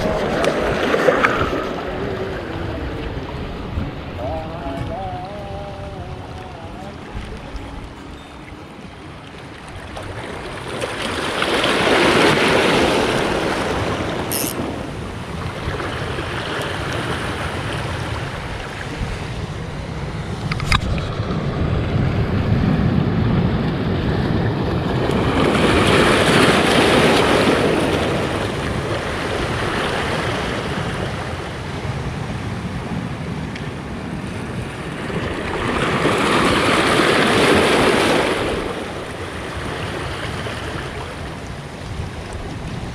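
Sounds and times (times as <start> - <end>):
sea waves washing against rocks: 0.0 - 42.9
sharp click: 14.3 - 14.6.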